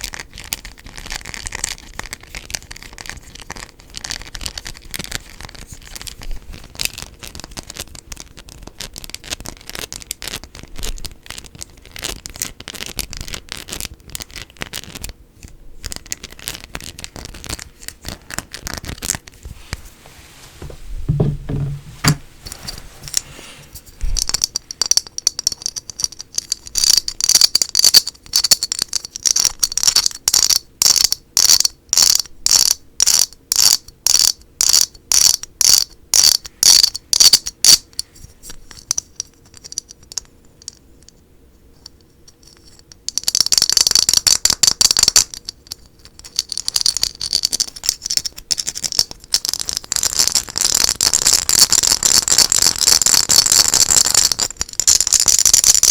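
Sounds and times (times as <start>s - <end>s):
scratching and tapping on hard object: 0.0s - 19.8s, 20.6s - 23.3s, 41.8s - 55.9s.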